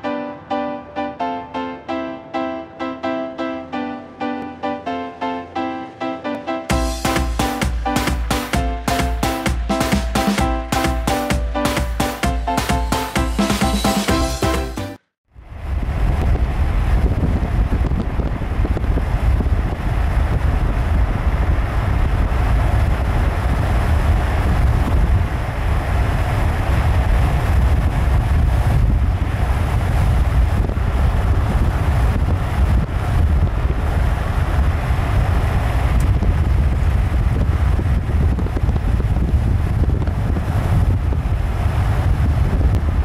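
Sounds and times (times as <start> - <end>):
freight train rumbling past: 0.0 - 43.0
wind buffeting microphone: 15.4 - 43.0.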